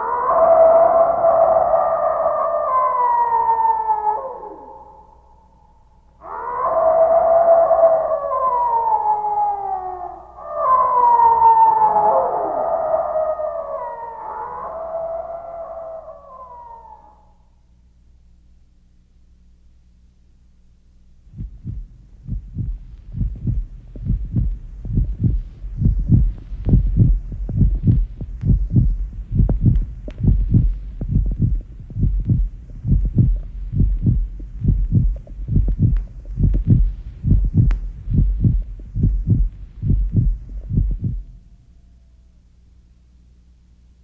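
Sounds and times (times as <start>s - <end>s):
low hum: 0.0s - 44.0s
heartbeat thumps: 21.2s - 41.4s.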